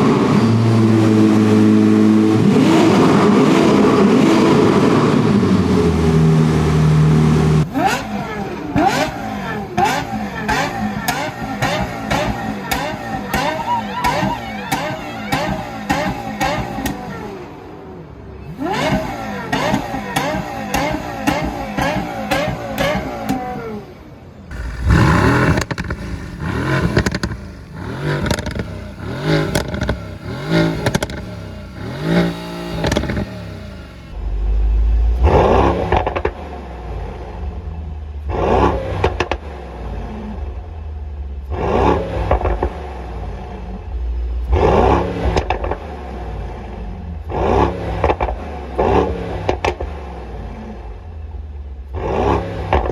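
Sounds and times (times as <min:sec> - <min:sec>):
car engines revving: 0:00.0 - 0:52.9
sharp exhaust cracks: 0:24.5 - 0:34.2.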